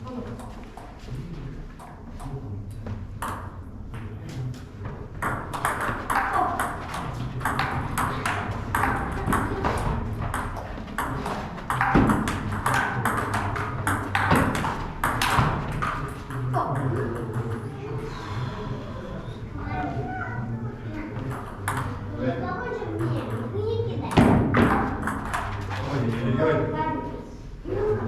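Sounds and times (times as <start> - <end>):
table tennis balls clicking: 5.2 - 17.7, 21.2 - 22.0, 24.1 - 25.7.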